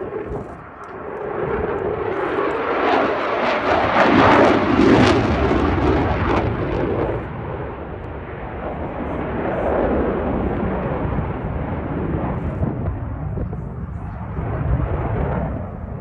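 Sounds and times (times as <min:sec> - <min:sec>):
jet engine roar with crackle: 0:00.0 - 0:16.0.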